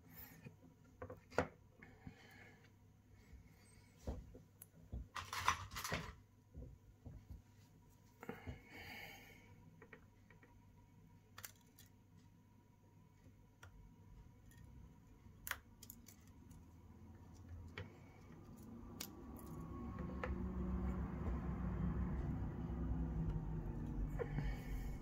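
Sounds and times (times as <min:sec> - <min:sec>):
low hum: 0:16.6 - 0:25.0.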